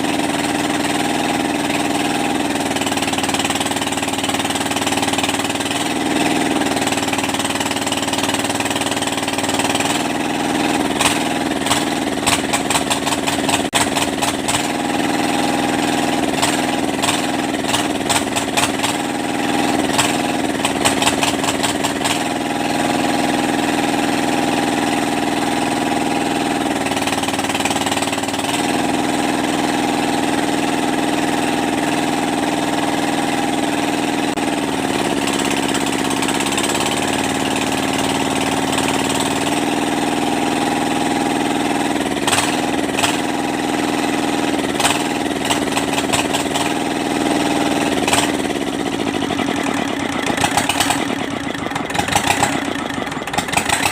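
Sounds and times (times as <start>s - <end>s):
diesel engine idling: 0.0s - 53.9s
rapid clattering clicks: 16.3s - 19.2s, 19.9s - 22.4s, 44.6s - 53.9s.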